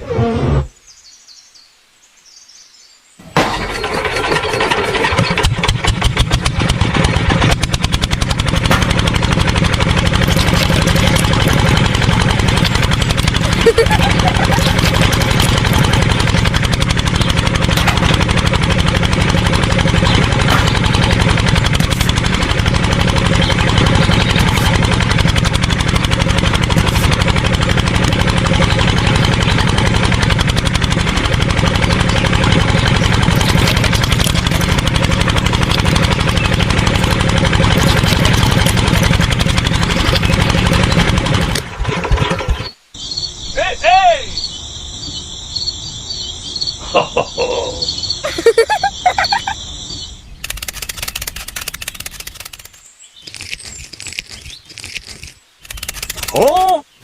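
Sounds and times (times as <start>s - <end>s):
diesel engine running: 3.2s - 43.6s, 44.4s - 57.0s
bird calls falling: 8.8s - 41.5s, 42.3s - 57.0s
crickets chirping: 43.0s - 50.3s.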